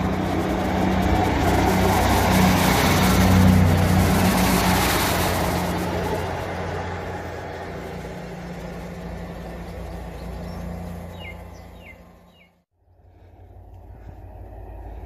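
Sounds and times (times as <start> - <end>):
rail rumble: 0.0 - 15.0
train engine hum: 0.0 - 15.0
bird chirps: 10.1 - 12.6.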